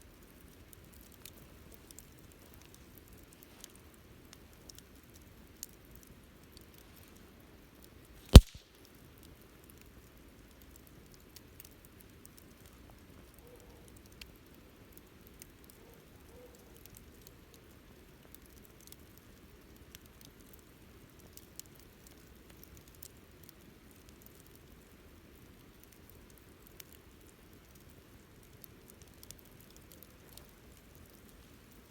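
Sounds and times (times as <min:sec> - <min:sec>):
campfire crackling: 0:00.0 - 0:31.9
loud sharp pop of fire: 0:08.3 - 0:08.7.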